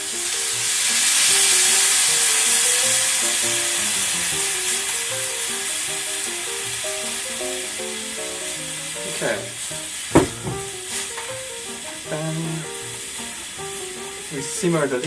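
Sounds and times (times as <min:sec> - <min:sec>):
hot oil hissing and sizzling: 0:00.0 - 0:15.0
soft background music: 0:00.0 - 0:15.0.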